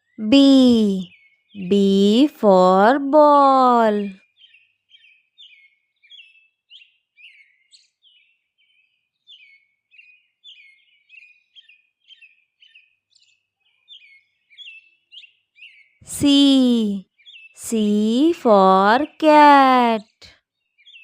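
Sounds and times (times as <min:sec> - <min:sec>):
small bird chirping: 0:04.2 - 0:18.4, 0:20.7 - 0:21.0.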